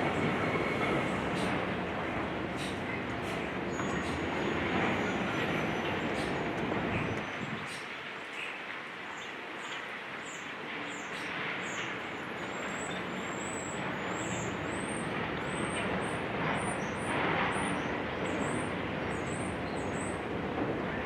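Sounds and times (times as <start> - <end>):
heavy engines rumbling: 0.0 - 7.9.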